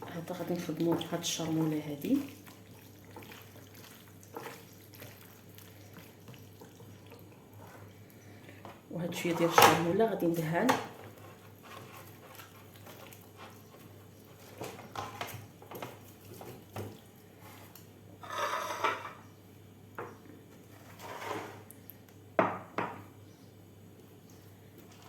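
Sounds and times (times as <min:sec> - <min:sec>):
utensils and dishes clinking: 0:18.2 - 0:19.2.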